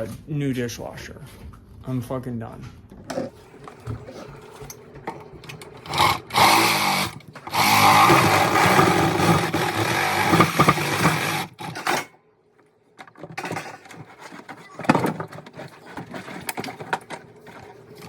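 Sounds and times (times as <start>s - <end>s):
power tool running: 4.0s - 12.1s.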